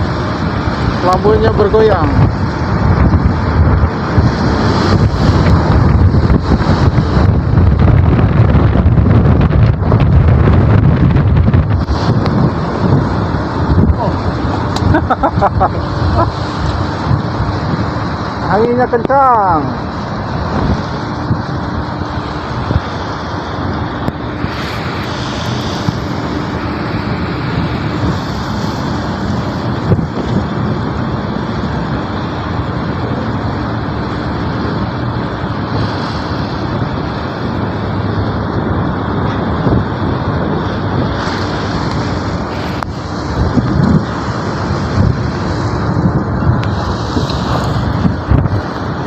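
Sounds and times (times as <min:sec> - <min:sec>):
strong wind on microphone: 0:00.0 - 0:49.0.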